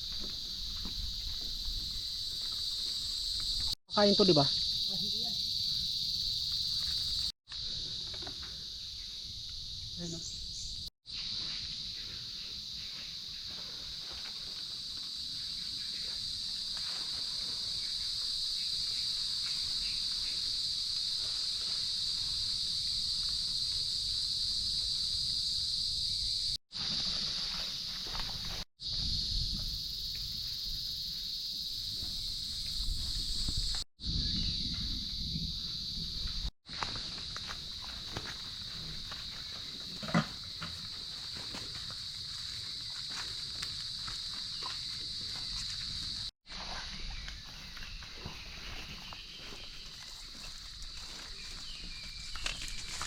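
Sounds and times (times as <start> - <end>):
footsteps in undergrowth: 0.0 - 3.8, 11.1 - 23.7, 26.7 - 28.7, 36.6 - 53.0
night insects droning: 0.0 - 53.0
rustling in undergrowth: 40.8 - 53.0.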